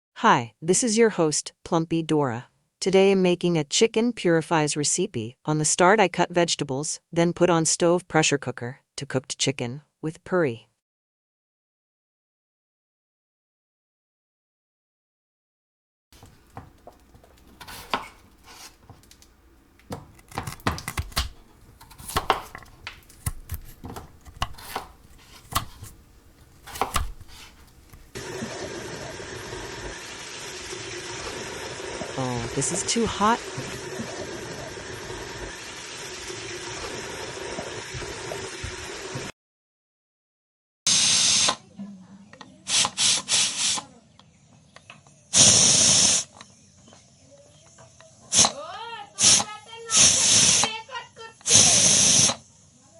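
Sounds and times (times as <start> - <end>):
cookware and utensils clinking: 16.2 - 28.4
sharp hissing bursts: 43.0 - 43.8.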